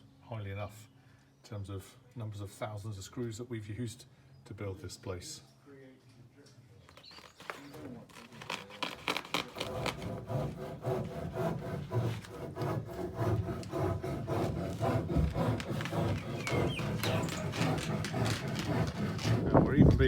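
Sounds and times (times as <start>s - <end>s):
hand saw cutting timber: 7.0s - 20.0s.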